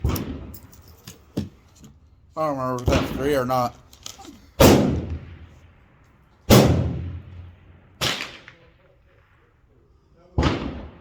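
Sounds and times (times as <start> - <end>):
rifle shots with echo: 0.0 - 0.7, 2.8 - 3.7, 4.6 - 11.0.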